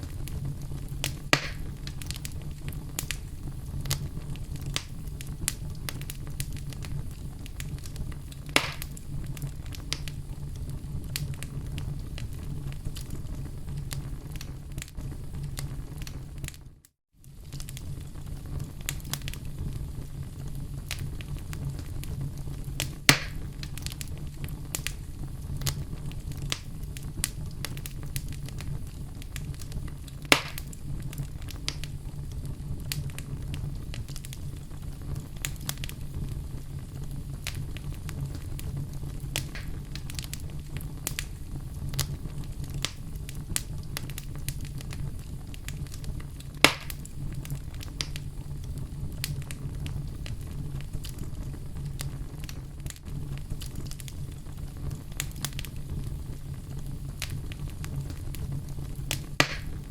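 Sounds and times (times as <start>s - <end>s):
wood fire crackling: 0.0s - 59.9s
sharp wood snaps: 1.3s - 1.6s, 8.6s - 8.9s, 23.1s - 23.4s, 30.3s - 30.6s, 59.4s - 59.8s.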